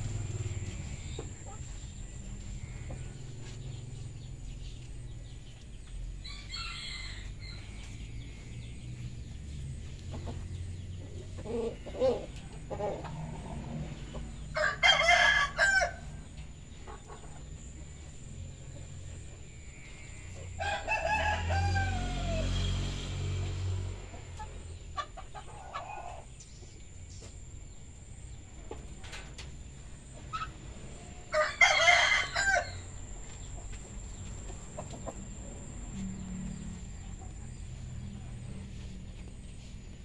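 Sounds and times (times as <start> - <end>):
chicken clucking: 0.6 - 3.8, 9.8 - 14.4, 24.2 - 27.4, 33.3 - 36.0
rooster crowing: 6.2 - 7.9, 14.4 - 16.2, 20.5 - 22.8, 31.2 - 33.0.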